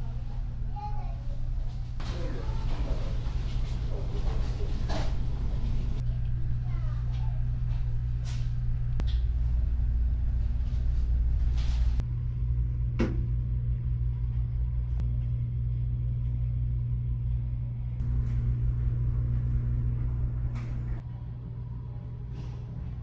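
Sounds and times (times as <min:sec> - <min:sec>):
ship engine hum: 0:00.0 - 0:12.0, 0:18.0 - 0:21.0.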